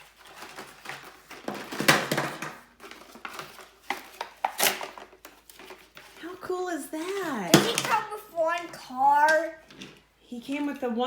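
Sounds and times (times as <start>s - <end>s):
plastic packaging rustling: 0.0s - 11.0s.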